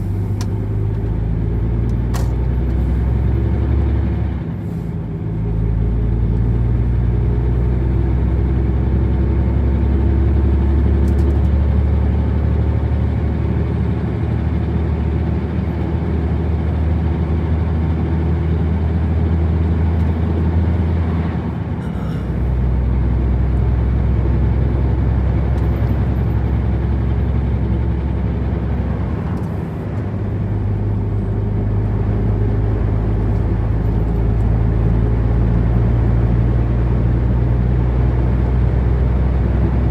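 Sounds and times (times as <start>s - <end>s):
truck engine droning: 0.0s - 39.9s
tyre and road noise: 18.7s - 39.9s.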